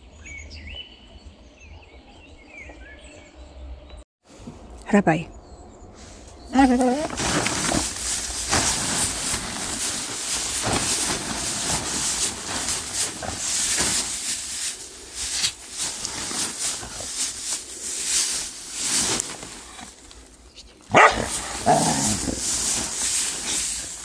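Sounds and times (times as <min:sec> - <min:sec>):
flung dirt rustling: 0:06.2 - 0:24.0
animal claws scraping earth: 0:06.8 - 0:24.0.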